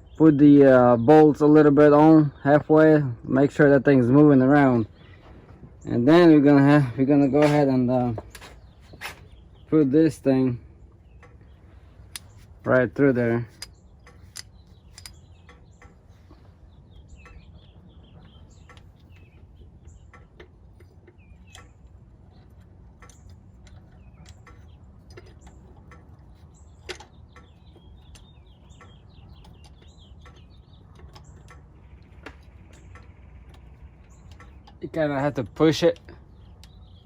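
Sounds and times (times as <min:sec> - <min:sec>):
low steady rumble: 0:00.0 - 0:37.0
small birds chirping: 0:00.0 - 0:37.0
metal tools clicking and tapping: 0:06.8 - 0:09.3, 0:12.1 - 0:16.0, 0:17.2 - 0:37.0.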